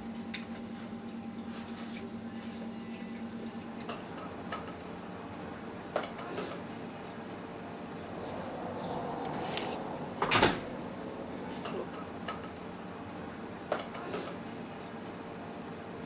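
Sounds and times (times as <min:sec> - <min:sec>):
room hum: 0:06.6 - 0:16.0.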